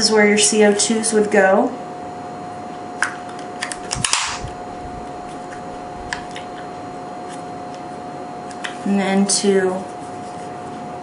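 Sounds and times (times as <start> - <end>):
air pistol parts clicking and snapping: 3.6 - 4.4.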